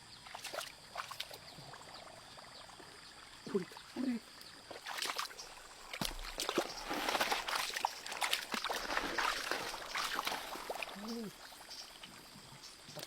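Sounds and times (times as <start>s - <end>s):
water splashing and sloshing: 0.1s - 13.0s.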